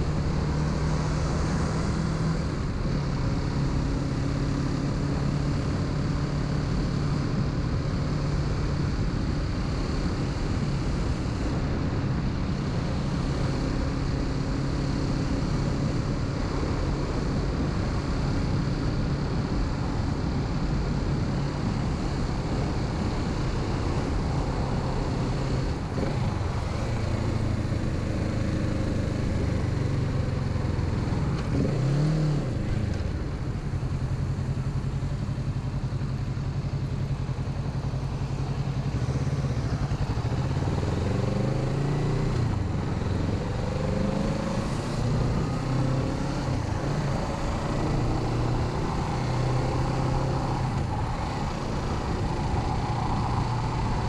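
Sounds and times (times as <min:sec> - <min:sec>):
motorcycle engine revving: 0:22.5 - 0:54.0.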